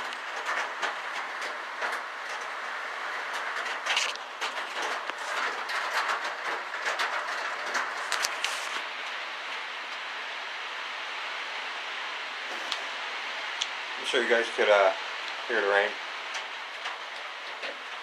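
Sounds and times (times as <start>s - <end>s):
raindrops tapping: 0.0s - 10.1s, 12.5s - 18.0s
heavy rain hiss: 0.0s - 18.0s.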